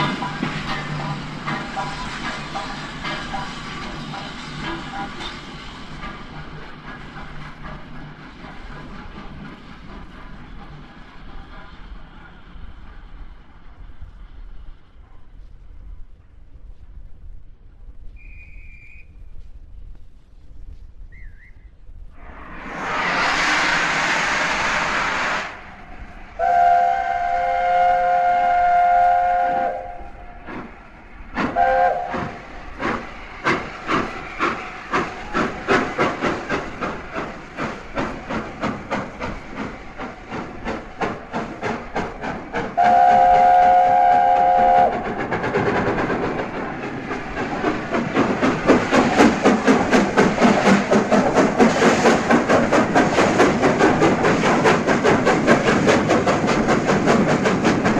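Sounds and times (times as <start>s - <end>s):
wheels clacking over rail joints: 0.0s - 13.2s, 30.4s - 57.9s
train horn: 26.4s - 30.2s, 31.5s - 32.3s, 42.8s - 45.0s.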